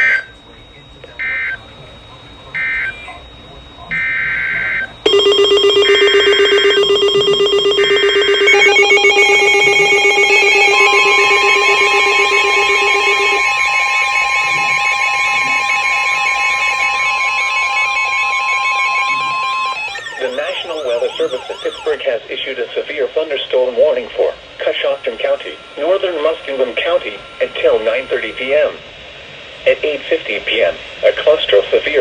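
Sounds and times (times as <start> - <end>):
weather radio data bursts: 1.2 - 22.2
steady high alert tones: 5.0 - 22.0
fast pulsing beep: 5.1 - 22.0
warbling tone: 5.1 - 22.0.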